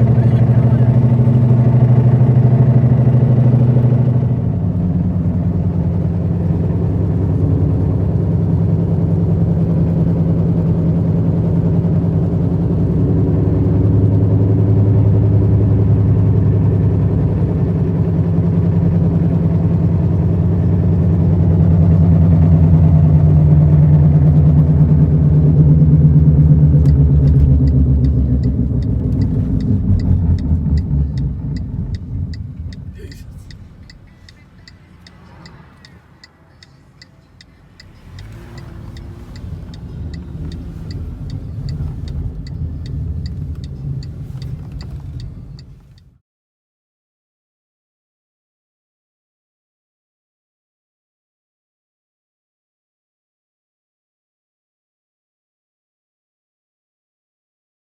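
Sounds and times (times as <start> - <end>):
low humming drone while driving: 0.0 - 46.2.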